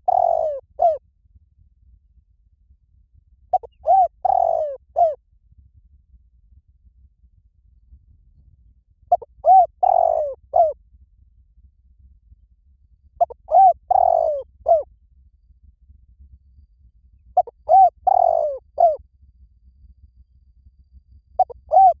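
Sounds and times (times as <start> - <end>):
dove cooing: 0.0 - 1.0, 3.5 - 5.2, 9.1 - 10.8, 13.2 - 14.8, 17.4 - 19.0, 21.4 - 22.0.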